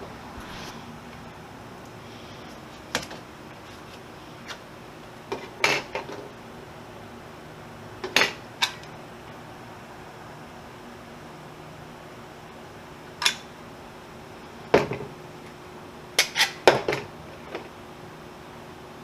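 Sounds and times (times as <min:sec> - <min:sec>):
heavy rain hiss: 0:00.0 - 0:05.2.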